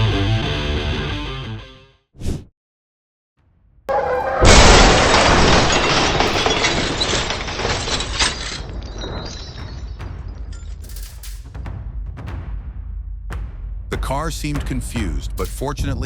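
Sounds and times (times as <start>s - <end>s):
vehicle crash: 3.9s - 11.0s
glass shattering: 3.9s - 11.3s.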